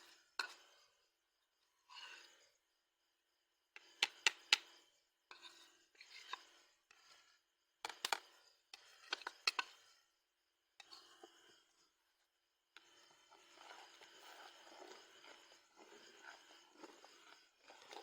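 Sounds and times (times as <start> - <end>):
rasping and scraping: 12.8 - 18.0.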